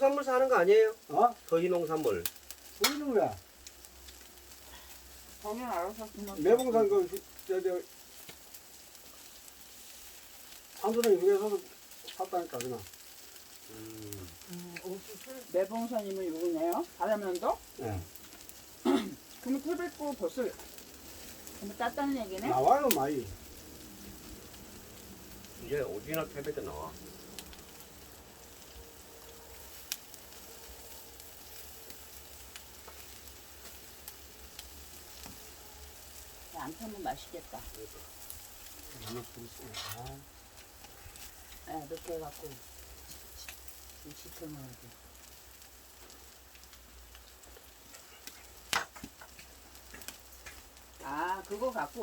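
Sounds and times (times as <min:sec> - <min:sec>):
fire crackling: 0:00.0 - 0:52.0
pork sizzling on a grill: 0:00.0 - 0:52.0.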